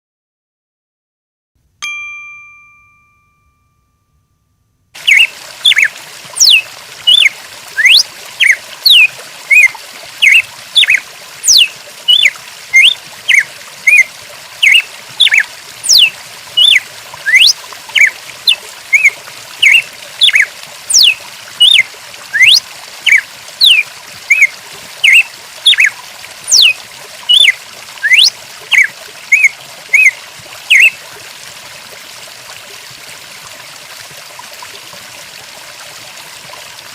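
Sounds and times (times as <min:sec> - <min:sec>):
chime: 0:01.8 - 0:04.8
running water: 0:05.0 - 0:36.9
high sweeping bird chirps: 0:05.1 - 0:14.0, 0:14.6 - 0:18.1, 0:19.0 - 0:21.8, 0:22.4 - 0:25.9, 0:26.5 - 0:30.1, 0:30.7 - 0:30.9.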